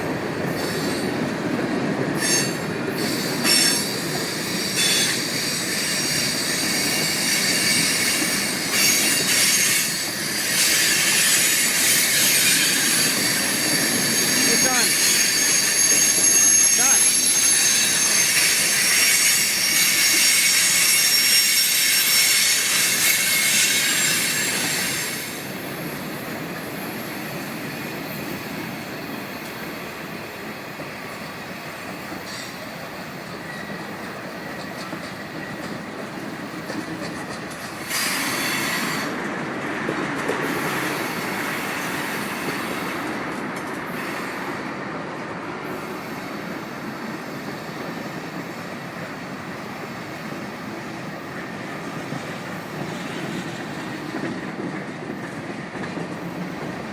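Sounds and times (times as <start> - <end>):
train wheels squealing on rail: 0.0 - 56.9
rumble of wheels on track: 21.6 - 56.9.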